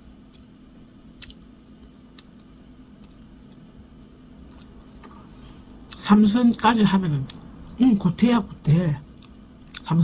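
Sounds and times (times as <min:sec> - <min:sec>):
low room hum: 0:00.0 - 0:10.0
soft mouth clicks chewing: 0:01.2 - 0:05.3, 0:09.2 - 0:09.9.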